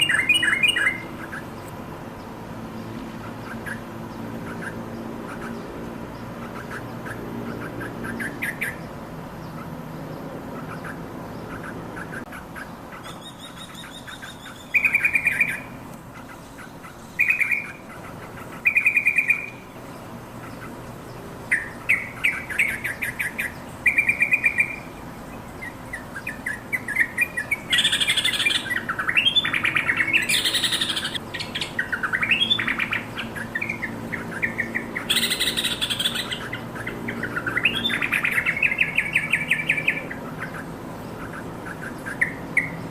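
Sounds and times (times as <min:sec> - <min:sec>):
bird whistled notes: 0:00.0 - 0:01.1
bird chattering calls: 0:00.0 - 0:01.7, 0:03.2 - 0:09.8, 0:10.4 - 0:42.9.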